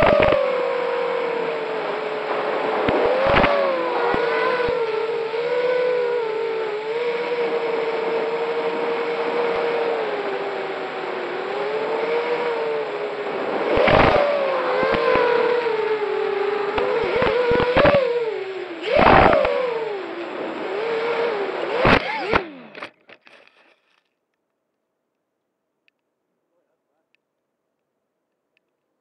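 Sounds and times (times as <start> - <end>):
drone motors whining: 0.0 - 24.0.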